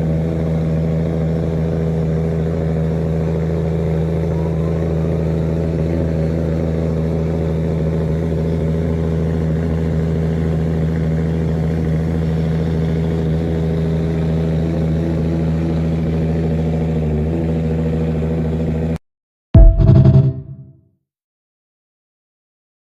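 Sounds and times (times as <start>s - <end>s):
car engine idling: 0.4s - 16.9s.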